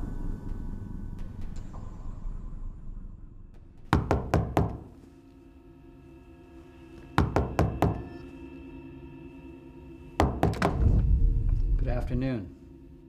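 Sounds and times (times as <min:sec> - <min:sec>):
knuckles knocking on wooden door: 0:04.0 - 0:04.9, 0:07.2 - 0:08.1, 0:10.2 - 0:10.8.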